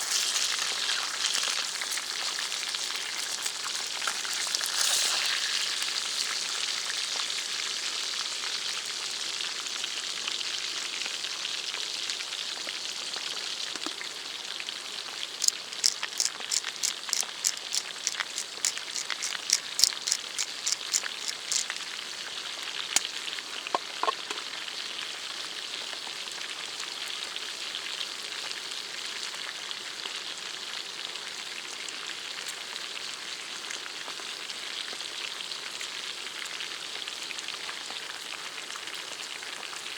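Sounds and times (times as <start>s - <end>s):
food sizzling in a pan: 0.0s - 10.2s
quick even clicks: 15.4s - 21.9s.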